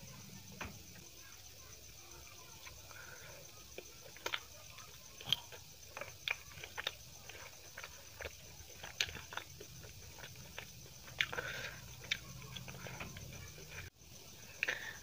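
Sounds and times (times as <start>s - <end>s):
chewing with wet clicks: 3.7s - 13.9s.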